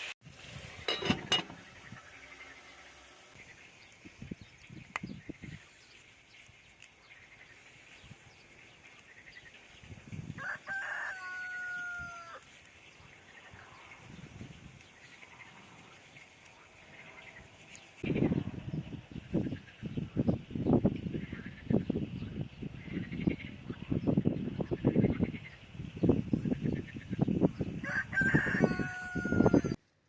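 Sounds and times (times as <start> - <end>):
rooster crowing: 10.4 - 12.4, 27.8 - 29.8.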